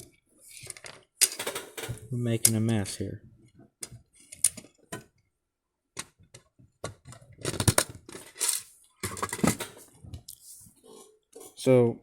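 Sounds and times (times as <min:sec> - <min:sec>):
small hard parts clicking and rattling: 0:00.4 - 0:02.9, 0:06.0 - 0:10.4.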